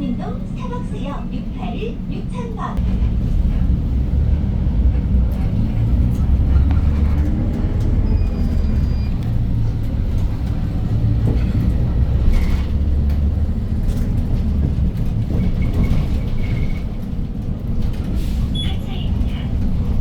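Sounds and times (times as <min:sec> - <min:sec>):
bus engine low rumble: 0:00.0 - 0:20.0.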